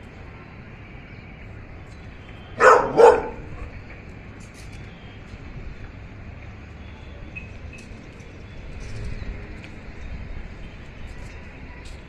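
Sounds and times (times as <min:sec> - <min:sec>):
dog barking: 0:02.6 - 0:03.5.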